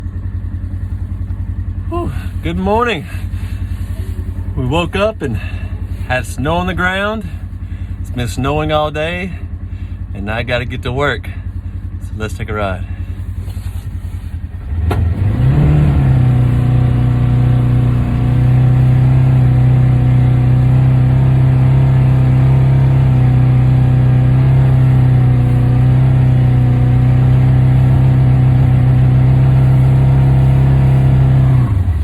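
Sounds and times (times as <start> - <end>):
utility vehicle engine revving: 0.0 - 32.0.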